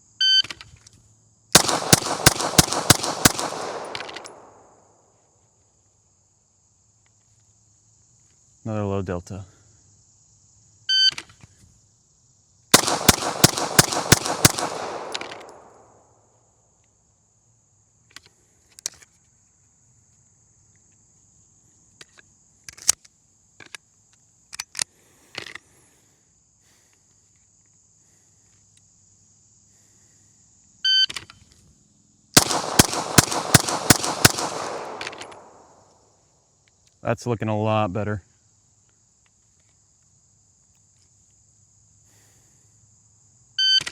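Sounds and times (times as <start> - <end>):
insect buzz: 0.0 - 37.0, 38.2 - 43.9
rapid pistol fire: 1.6 - 4.8, 12.7 - 16.0, 32.4 - 35.8.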